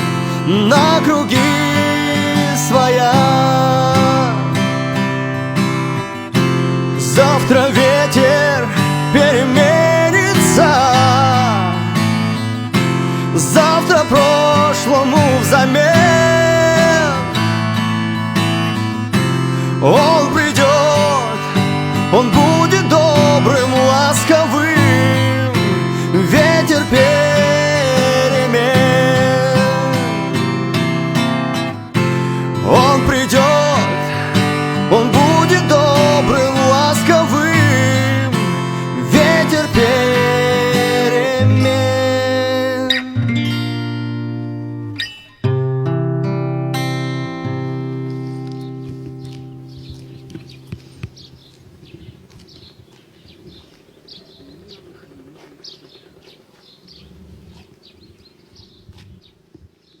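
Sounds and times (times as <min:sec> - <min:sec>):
instrumental pop ballad: 0:00.0 - 0:51.1
small birds chirping: 0:07.0 - 0:31.4, 0:47.7 - 1:00.0.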